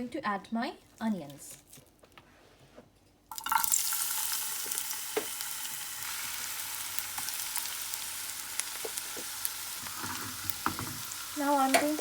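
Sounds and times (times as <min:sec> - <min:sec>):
onions sizzling in hot oil: 0:03.3 - 0:12.0.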